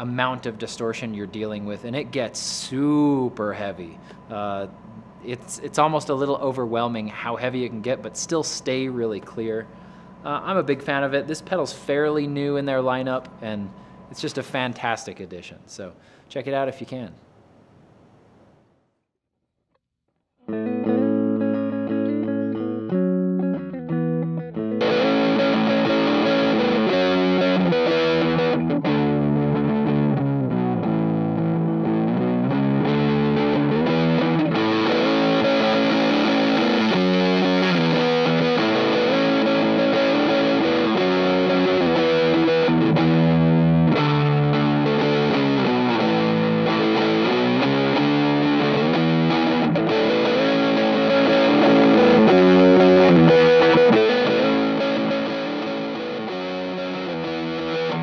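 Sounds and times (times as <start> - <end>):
distorted electric guitar riff: 20.5 - 58.0.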